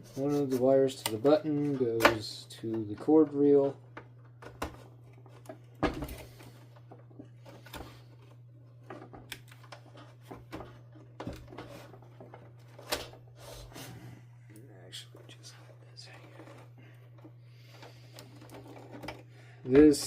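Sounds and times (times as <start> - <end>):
low steady hum: 0.0 - 20.0
clicks and rattles of parts: 16.1 - 20.0.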